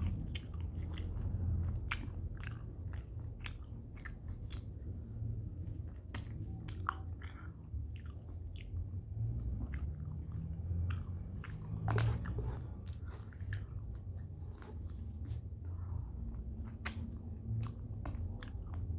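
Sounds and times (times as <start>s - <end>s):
mouth clicks and smacks: 0.0s - 5.0s, 16.5s - 18.9s
person chewing food: 0.0s - 18.9s
steady low hum: 0.0s - 18.9s.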